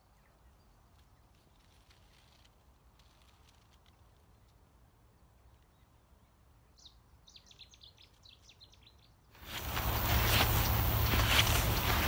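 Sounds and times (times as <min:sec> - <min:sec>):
loud rush of noise: 0:09.4 - 0:12.0.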